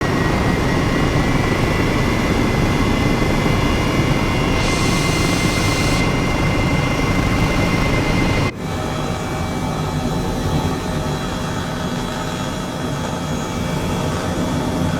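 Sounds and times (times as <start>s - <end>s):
aircraft engines roaring: 0.0s - 14.9s
bright hiss: 4.4s - 8.1s.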